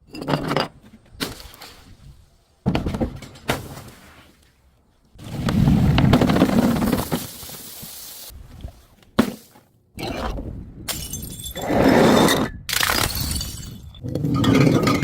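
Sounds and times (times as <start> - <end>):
glass bottles shattering: 10.9 - 11.6, 12.7 - 15.0.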